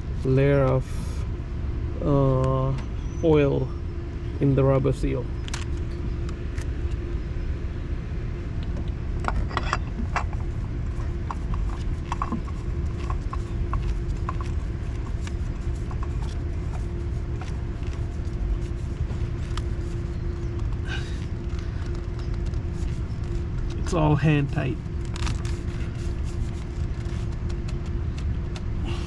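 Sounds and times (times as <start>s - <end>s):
low rumble: 0.0s - 29.0s
oil filter clicks and scrapes: 9.2s - 28.7s.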